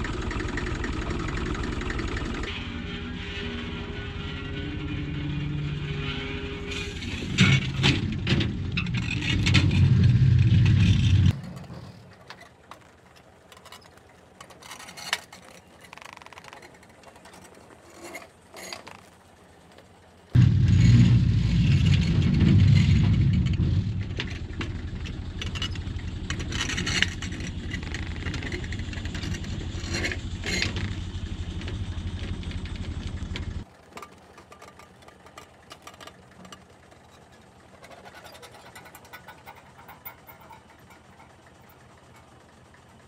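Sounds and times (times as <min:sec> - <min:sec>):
excavator engine running: 0:00.0 - 0:43.0.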